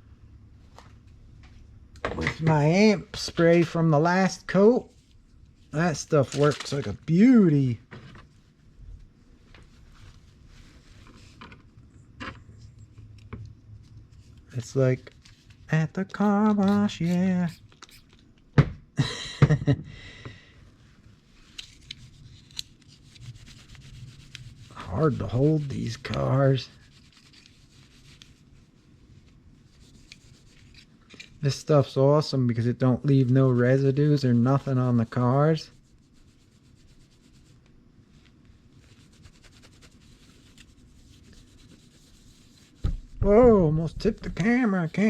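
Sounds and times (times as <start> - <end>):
cloth rubbing on plastic: 9.4 - 11.4, 16.2 - 18.1, 22.0 - 30.8, 34.7 - 45.0
spray hissing: 16.2 - 18.1.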